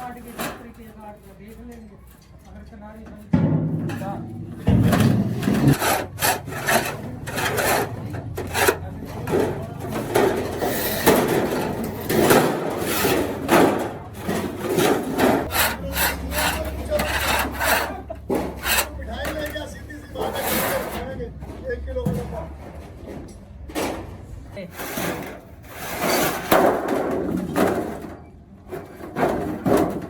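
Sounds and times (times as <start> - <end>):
rough rasping hand tool strokes: 5.5 - 20.9.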